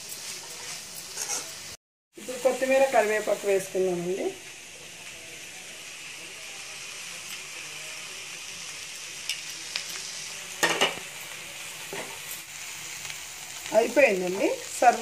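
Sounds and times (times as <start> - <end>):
beans sizzling in a pan: 0.0 - 15.0
spoon scraping and clinking on pan: 0.3 - 1.6.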